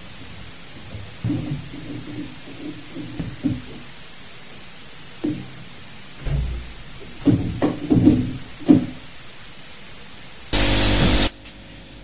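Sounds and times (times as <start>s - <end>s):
loud steady hiss: 0.0s - 12.0s
dull knocks and thuds: 0.1s - 9.3s.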